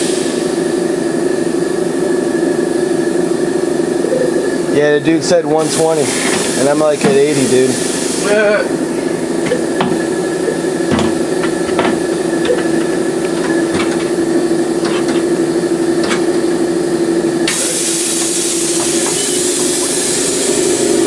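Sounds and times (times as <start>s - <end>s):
air compressor humming: 0.0s - 21.0s
compressed air hissing: 5.6s - 21.0s
metal tools clanking: 9.4s - 16.4s.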